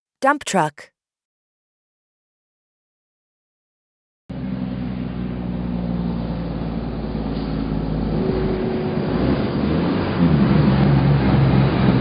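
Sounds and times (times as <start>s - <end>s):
truck engine running: 4.3s - 12.0s.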